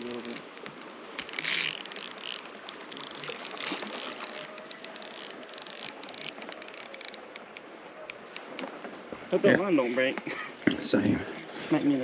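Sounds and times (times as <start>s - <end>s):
fishing reel clicking: 0.0s - 8.8s.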